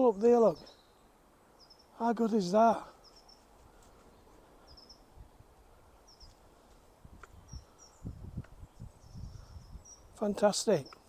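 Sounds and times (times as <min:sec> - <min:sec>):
faint outdoor background noise: 0:00.0 - 0:11.0
small bird chirping: 0:00.2 - 0:02.0, 0:02.9 - 0:05.1, 0:06.0 - 0:06.5, 0:07.2 - 0:11.0.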